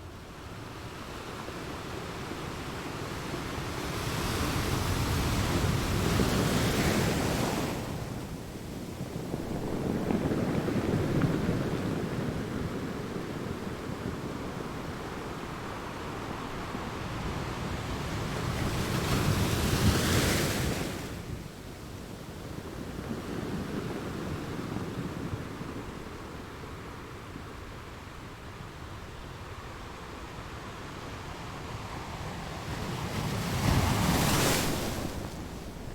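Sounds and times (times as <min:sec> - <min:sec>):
ocean waves washing: 0:31.5 - 0:35.9.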